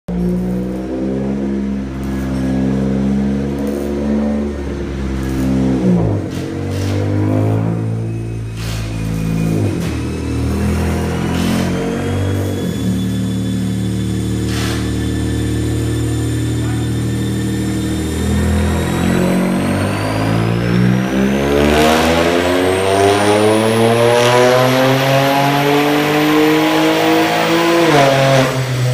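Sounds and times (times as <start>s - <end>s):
car engine revving on dyno: 0.1s - 28.9s
turbo whine: 7.4s - 24.6s.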